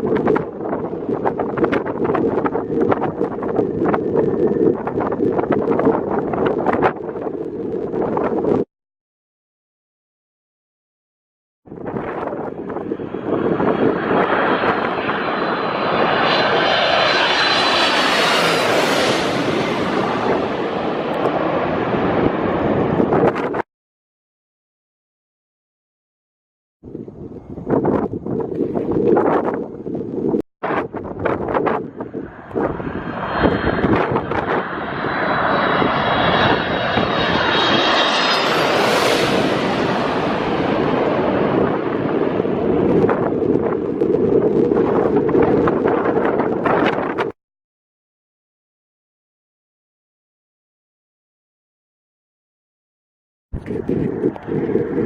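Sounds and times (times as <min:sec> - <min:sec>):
jet engine rush overhead: 0:00.0 - 0:08.7, 0:11.7 - 0:23.7, 0:26.9 - 0:47.4, 0:53.6 - 0:55.0
wind buffeting microphone: 0:00.0 - 0:08.7, 0:11.7 - 0:23.6, 0:26.8 - 0:47.4, 0:53.5 - 0:55.0.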